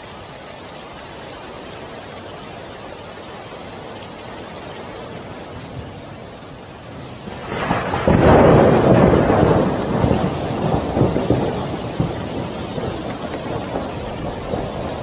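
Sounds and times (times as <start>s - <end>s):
steady rain: 0.0s - 15.0s
thunder rolling: 7.2s - 15.0s.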